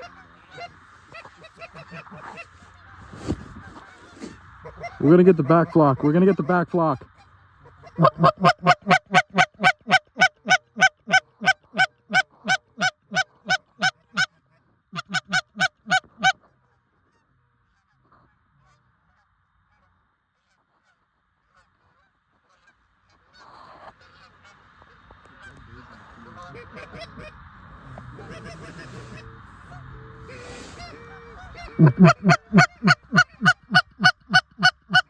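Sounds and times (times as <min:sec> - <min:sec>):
goose call honks: 0:07.8 - 0:14.3, 0:15.0 - 0:16.4, 0:28.2 - 0:35.0.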